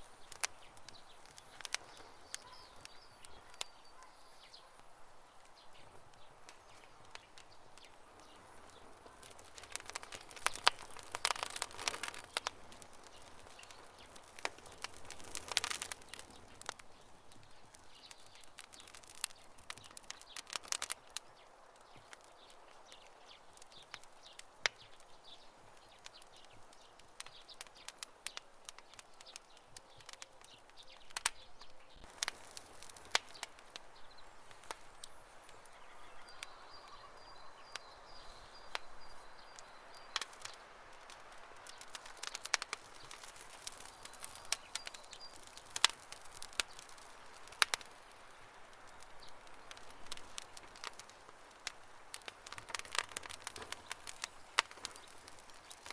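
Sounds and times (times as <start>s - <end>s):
fire hissing: 0.0s - 31.3s, 32.0s - 36.9s, 38.0s - 55.9s
campfire crackling: 0.0s - 55.9s.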